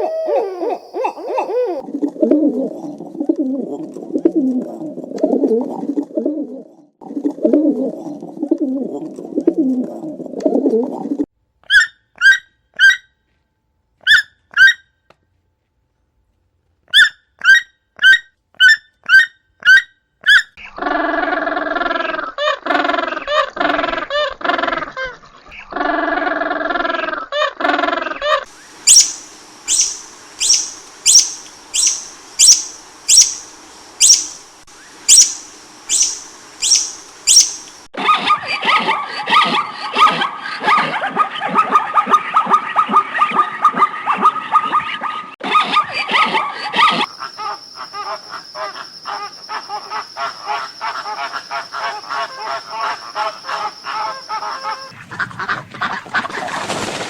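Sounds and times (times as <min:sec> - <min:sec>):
wavering animal calls: 0:00.0 - 0:01.8, 0:28.6 - 0:40.3, 0:45.5 - 0:55.0
rapid chatter of calls: 0:28.5 - 0:37.9, 0:46.4 - 0:54.9
sharp high chirps: 0:28.8 - 0:37.8
high whistling tone: 0:28.9 - 0:33.4.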